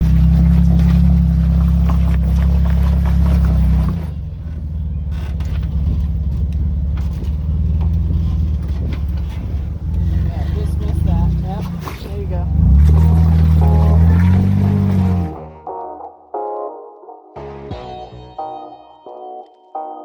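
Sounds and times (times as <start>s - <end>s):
car engine running: 0.0s - 15.6s.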